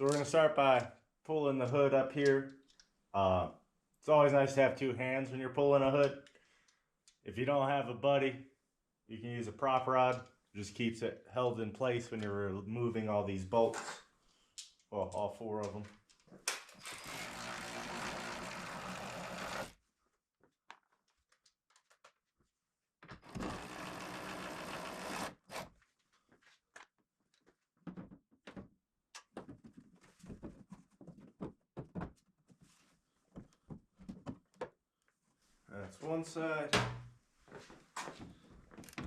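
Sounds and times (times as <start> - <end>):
power tool spinning bolts: 16.7 - 19.8, 23.2 - 25.7.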